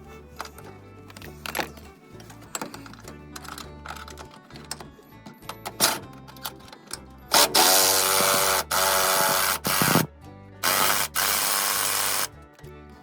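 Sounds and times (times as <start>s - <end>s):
background music: 0.0s - 13.0s
power tool buzzing: 7.3s - 12.3s.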